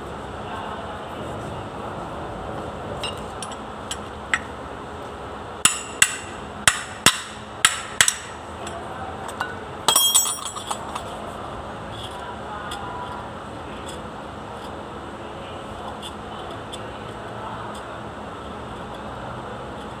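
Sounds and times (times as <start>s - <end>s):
hammer striking metal: 5.6s - 8.8s, 9.9s - 10.9s
metal clinks: 8.6s - 11.1s.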